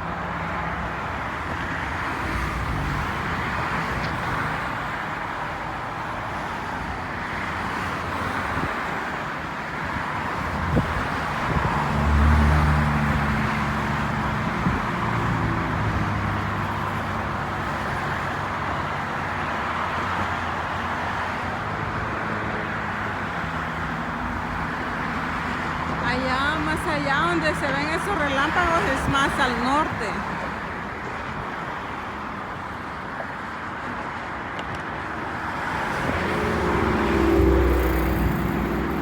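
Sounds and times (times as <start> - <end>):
road traffic noise: 0.0 - 39.0
vehicle engine hum passing: 10.4 - 18.8, 35.2 - 39.0.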